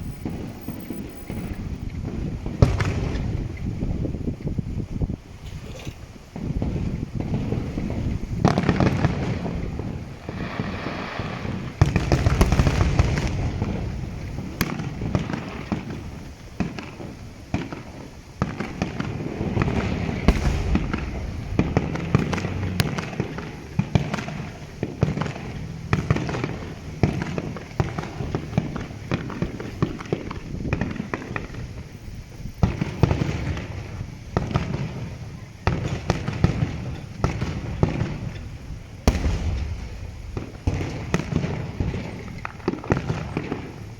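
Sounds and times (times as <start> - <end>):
crackle of sharp pops: 6.4 - 32.0, 35.7 - 43.9
fireworks shells bursting: 6.4 - 32.0, 32.6 - 43.9
heavy low booms: 19.6 - 23.3, 39.0 - 41.8.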